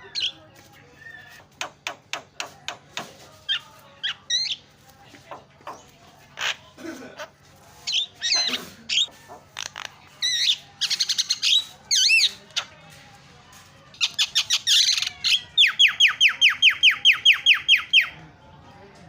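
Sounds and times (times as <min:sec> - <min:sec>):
myna singing whistles and chatters: 0:07.8 - 0:12.7, 0:14.0 - 0:18.2.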